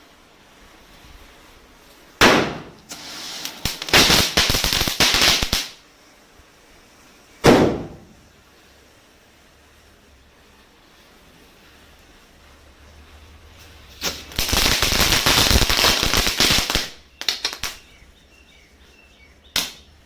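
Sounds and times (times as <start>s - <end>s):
hissing with crackling pops: 0.0s - 20.0s
firecracker bangs: 2.2s - 5.8s, 7.4s - 8.2s, 14.0s - 17.8s, 19.6s - 19.9s.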